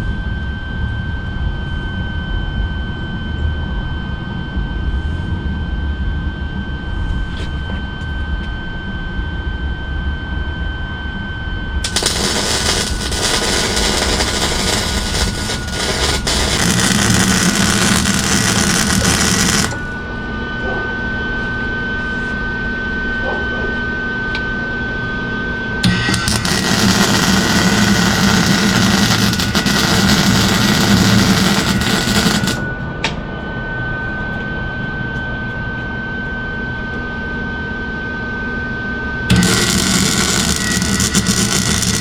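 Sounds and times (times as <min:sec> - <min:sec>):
high-pitched whine: 0:00.0 - 0:42.0
crackling welding arc: 0:11.8 - 0:19.8, 0:25.8 - 0:32.6, 0:39.3 - 0:42.0.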